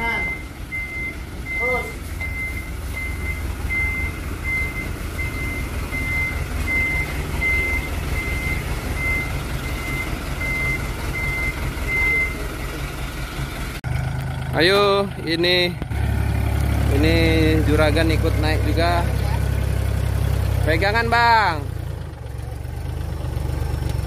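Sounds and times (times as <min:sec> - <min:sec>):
electronic warning beeper: 0:00.0 - 0:12.5
tractor diesel engine running: 0:00.0 - 0:24.0.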